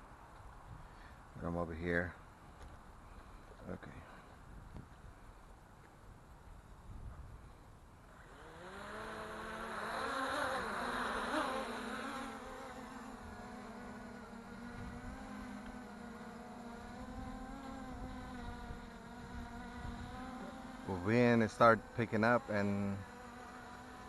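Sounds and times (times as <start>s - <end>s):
drone propellers buzzing: 7.3s - 24.0s.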